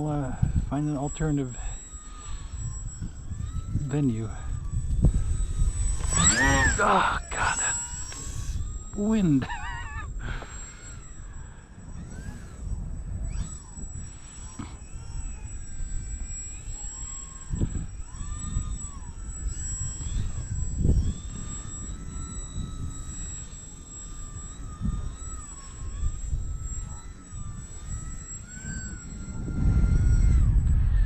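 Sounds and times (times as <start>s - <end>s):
model plane electric motor whining: 0.0s - 31.0s
wind buffeting microphone: 0.0s - 31.0s.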